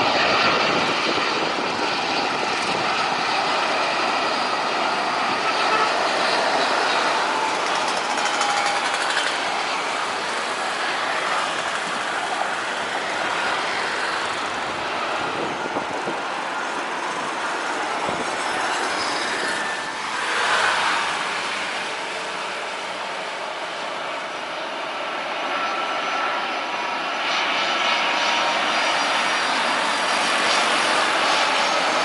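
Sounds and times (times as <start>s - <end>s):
jet airliner engine and air noise: 0.0s - 32.0s.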